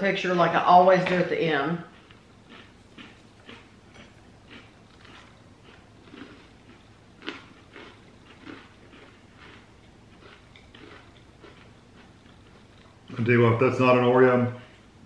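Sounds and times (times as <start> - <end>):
crunching and chewing cookie: 1.8 - 13.4.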